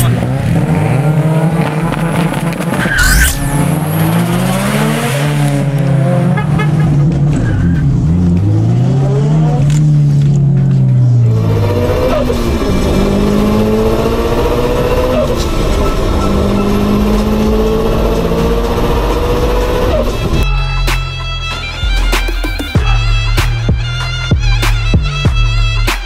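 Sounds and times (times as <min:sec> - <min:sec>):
engine revving at full throttle: 0:00.0 - 0:06.6, 0:08.0 - 0:10.5, 0:11.2 - 0:20.4.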